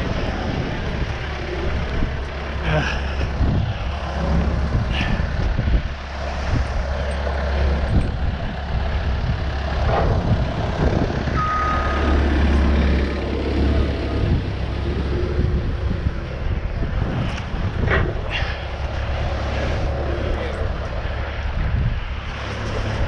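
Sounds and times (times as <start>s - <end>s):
heavy vehicle engine humming: 0.0s - 23.0s
reversing alarm beep: 11.4s - 12.2s.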